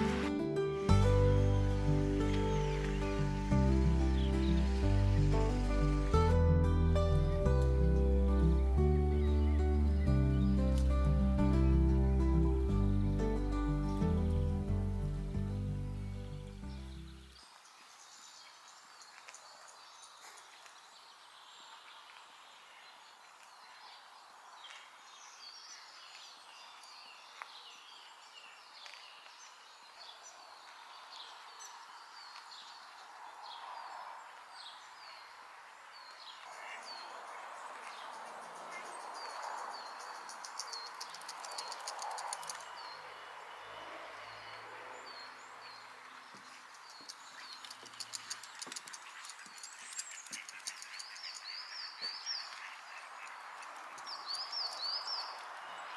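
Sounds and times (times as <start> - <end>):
rushing outdoor background noise: 0.0 - 0.3, 0.9 - 6.3, 36.4 - 55.9
small birds singing and chirping: 0.9 - 6.2, 7.0 - 55.9.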